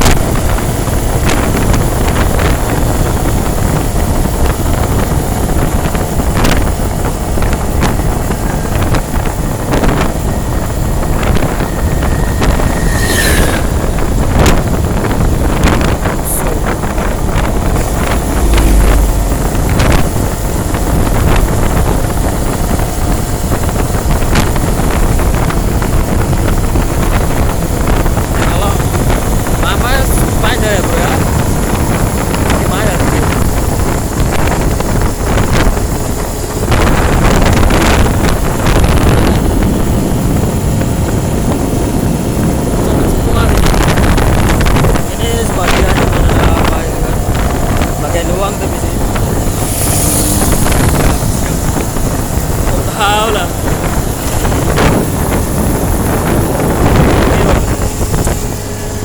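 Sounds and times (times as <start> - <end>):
road and engine rumble: 0.0 - 59.0
wind buffeting microphone: 0.0 - 59.0
brief tone: 10.5 - 15.0.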